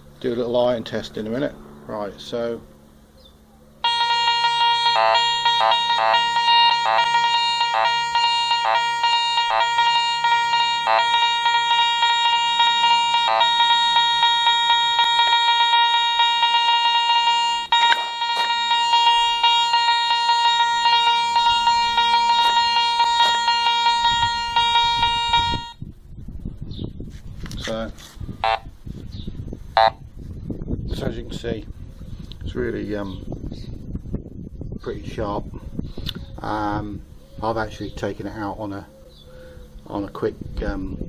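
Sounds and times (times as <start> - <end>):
metal detector high-pitched tone: 3.8 - 25.8, 28.4 - 28.7.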